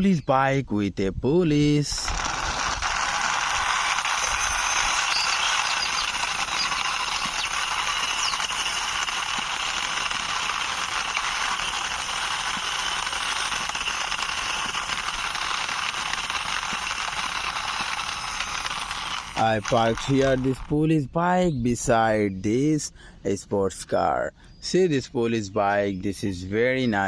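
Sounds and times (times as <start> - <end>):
toy wheels rattling and clicking: 1.8 - 20.9.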